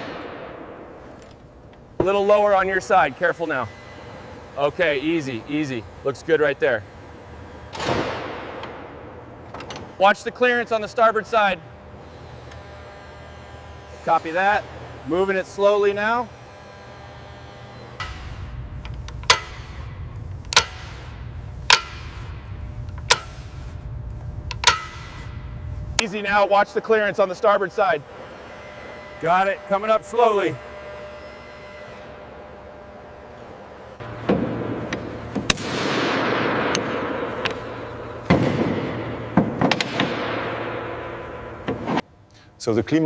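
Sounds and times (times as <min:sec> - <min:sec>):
steady low hum: 0:00.0 - 0:43.0
metal parts clanking and scraping: 0:09.5 - 0:10.1, 0:18.0 - 0:23.8, 0:24.4 - 0:25.4
sharp metal clanks: 0:19.2 - 0:19.9, 0:24.5 - 0:25.3.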